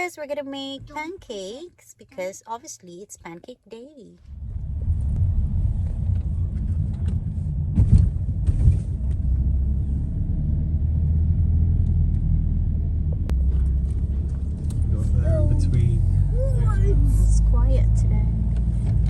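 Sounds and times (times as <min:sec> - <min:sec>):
car engine and road rumble: 0:04.2 - 0:19.0.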